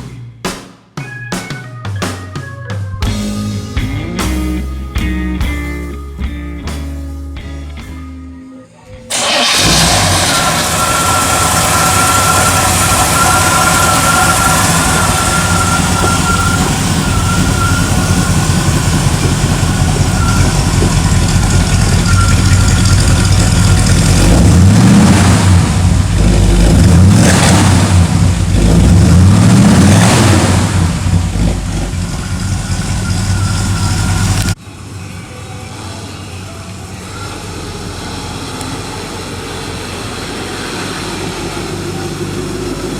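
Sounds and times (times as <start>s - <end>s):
car engine idling and revving: 9.0s - 42.9s.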